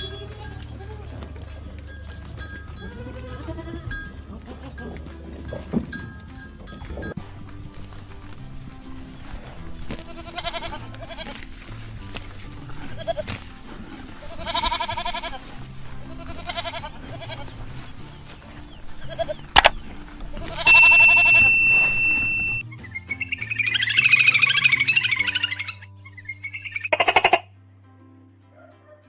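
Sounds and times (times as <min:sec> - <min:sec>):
sheep or goat bleating: 0:00.0 - 0:01.6, 0:02.8 - 0:05.7, 0:09.9 - 0:11.5, 0:12.7 - 0:17.6, 0:18.9 - 0:19.6, 0:20.3 - 0:22.1, 0:23.9 - 0:27.5
background music: 0:00.0 - 0:29.0.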